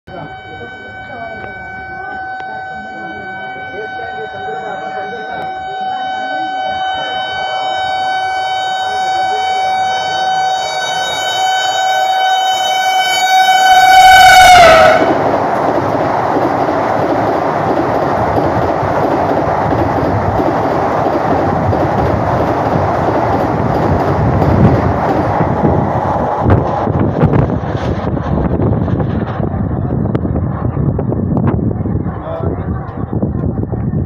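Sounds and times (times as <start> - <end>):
train horn: 0.1 - 15.4
train coaches rushing by: 12.6 - 34.0.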